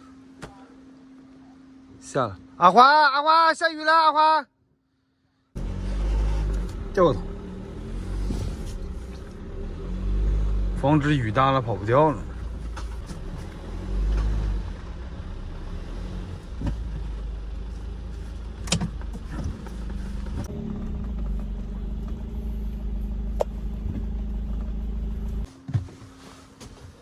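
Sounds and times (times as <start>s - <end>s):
van engine running: 5.6s - 27.0s.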